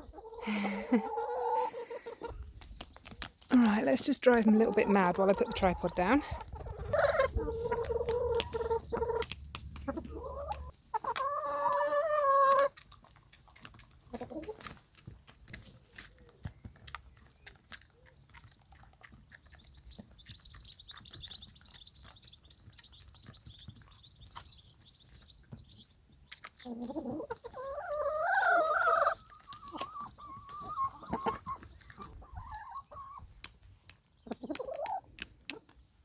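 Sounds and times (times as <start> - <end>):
hens calling: 0.0 - 12.9, 26.5 - 33.3
hens clucking: 0.0 - 33.4, 34.2 - 35.8.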